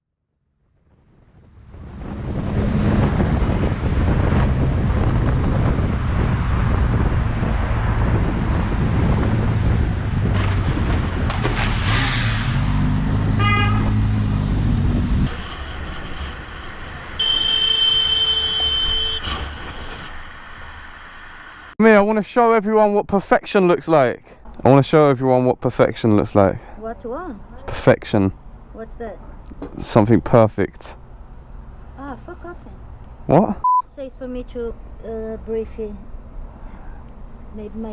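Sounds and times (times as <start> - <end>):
road noise: 0.4 - 37.9
motorcycle engine: 2.2 - 20.2
vehicle horn: 13.4 - 14.0, 17.2 - 19.4.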